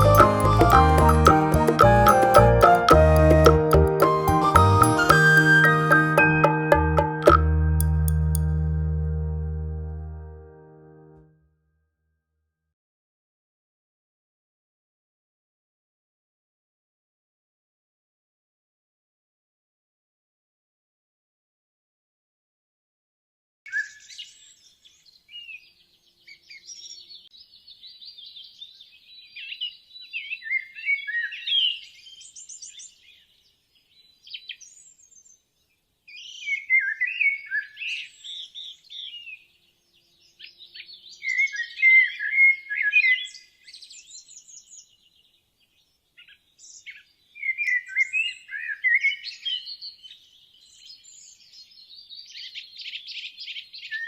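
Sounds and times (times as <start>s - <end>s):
birds chirping and warbling: 23.7s - 54.0s.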